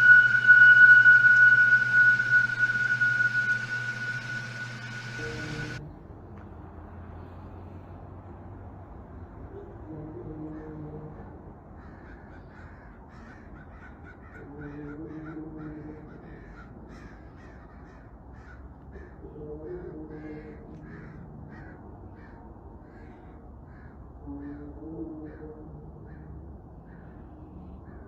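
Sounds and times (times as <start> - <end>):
low trumpet-like droning: 0.0 - 5.9, 9.9 - 11.4
short cawing calls: 16.2 - 19.2.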